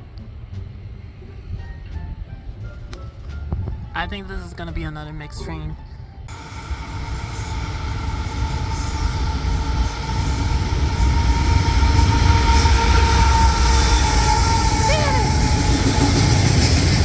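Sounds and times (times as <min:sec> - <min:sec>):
freight train rumbling past: 0:00.0 - 0:17.0
high-pitched whine: 0:06.3 - 0:17.0.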